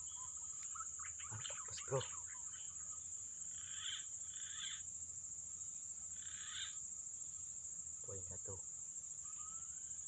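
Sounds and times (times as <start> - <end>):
high animal calls: 0.0 - 4.8, 6.1 - 6.8, 9.2 - 10.0
high-pitched insect drone: 0.0 - 10.0.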